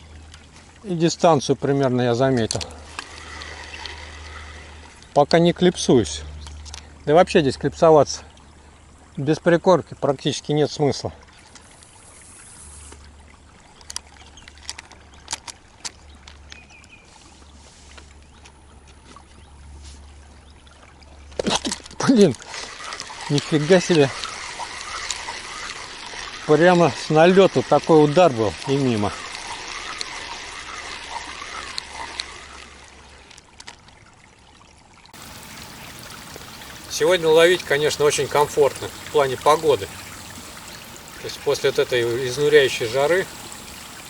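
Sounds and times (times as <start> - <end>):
river water trickling: 0.0 - 44.0
faint background hiss: 35.2 - 44.0.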